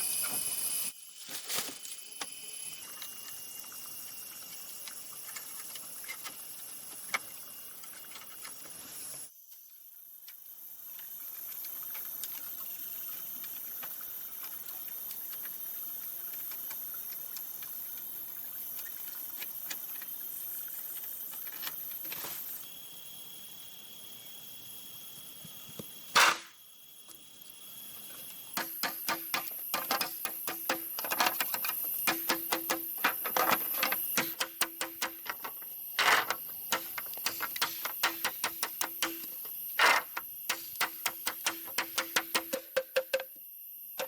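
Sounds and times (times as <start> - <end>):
high-pitched insect drone: 0.0 - 9.5, 22.5 - 44.0
hand tools knocking on bamboo: 28.6 - 43.4.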